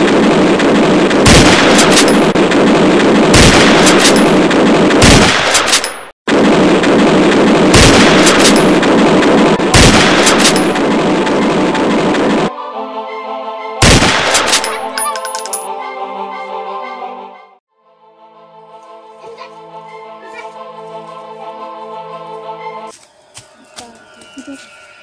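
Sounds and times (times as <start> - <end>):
rapid gunfire: 0.0 - 12.5
loud single gunshots: 9.7 - 10.6, 13.8 - 14.5.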